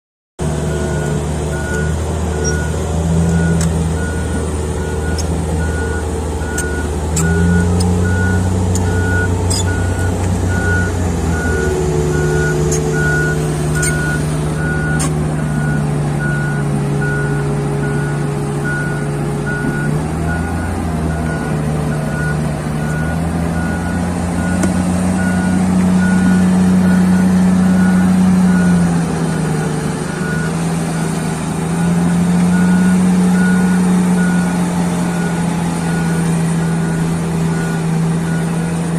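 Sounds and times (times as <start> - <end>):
excavator diesel engine running: 0.4 - 38.9
warning alarm beeping: 0.7 - 31.2.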